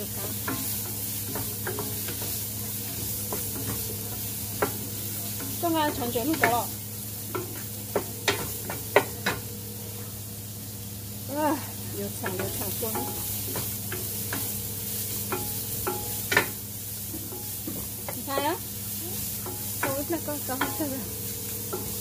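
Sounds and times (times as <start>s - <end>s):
wooden spatula knocking on pan: 0.0s - 6.7s, 7.3s - 9.5s, 12.2s - 14.6s, 15.2s - 18.6s, 19.4s - 21.0s
shallots sizzling in oil: 0.0s - 22.0s
steady low hum: 0.0s - 22.0s.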